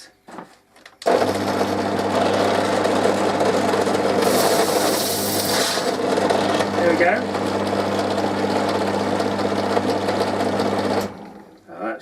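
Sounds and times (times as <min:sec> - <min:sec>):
power drill running: 0:01.0 - 0:11.6
drill bit hissing through plastic: 0:04.2 - 0:06.0.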